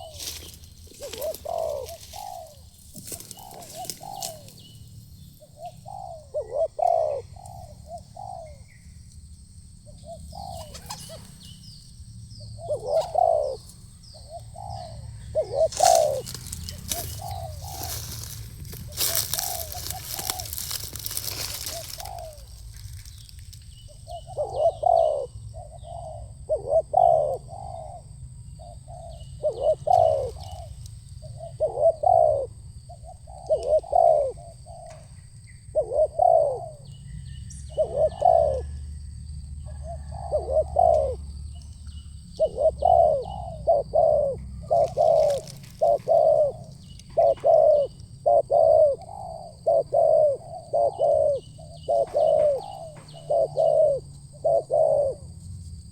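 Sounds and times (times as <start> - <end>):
doves cooing: 0.0 - 55.9
faint insect drone: 0.0 - 55.9
small chirps: 15.6 - 23.9.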